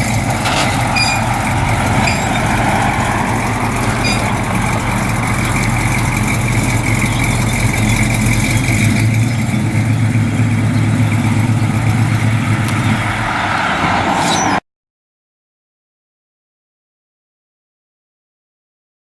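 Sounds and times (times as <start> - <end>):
truck engine running: 0.0 - 14.6.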